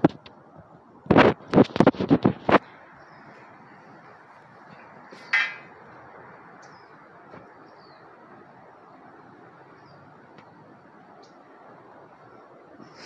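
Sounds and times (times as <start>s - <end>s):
outdoor background hiss: 0.0s - 13.0s
small birds chirping faintly: 1.8s - 13.0s
loud harsh bird call: 5.1s - 5.7s.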